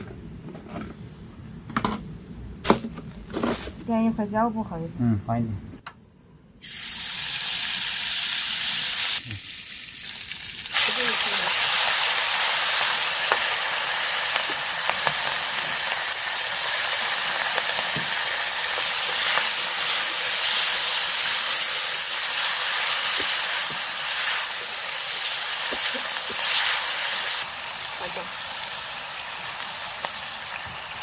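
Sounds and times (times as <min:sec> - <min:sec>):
meat sizzling in a pan: 0:06.6 - 0:31.0.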